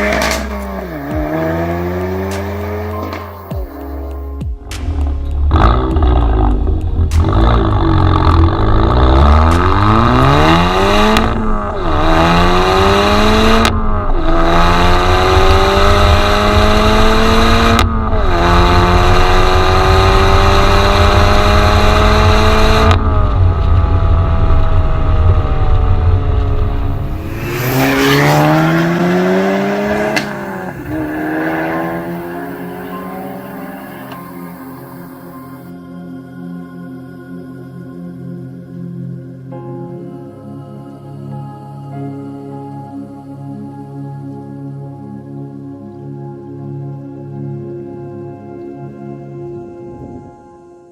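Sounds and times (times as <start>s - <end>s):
car engine accelerating hard: 0.0s - 35.7s
gear upshifts: 26.4s - 35.7s.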